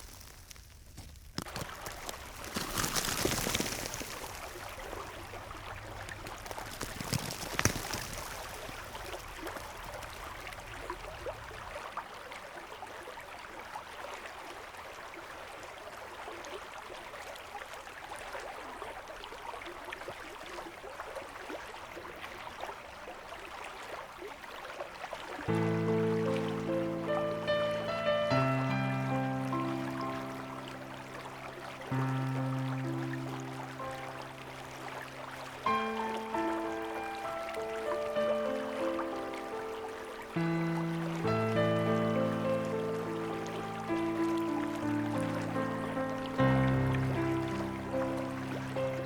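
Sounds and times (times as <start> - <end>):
river water rushing: 20.9 - 49.0.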